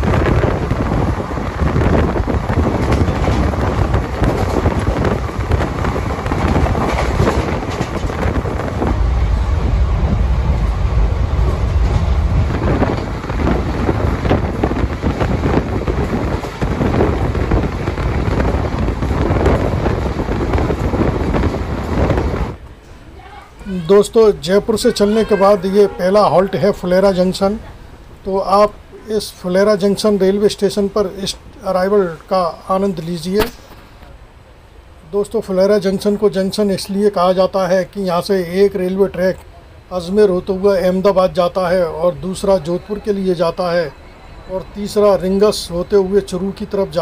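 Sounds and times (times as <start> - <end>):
wind buffeting microphone: 0.0 - 35.0
train wheels rumbling and clattering: 0.0 - 47.0.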